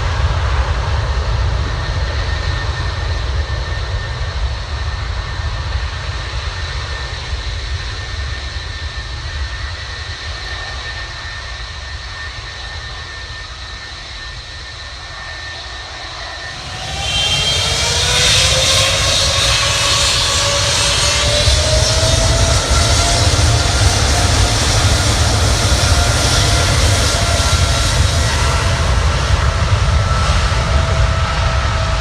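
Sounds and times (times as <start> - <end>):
jet engines whining: 0.0 - 32.0
jet engines spooling up: 6.6 - 32.0.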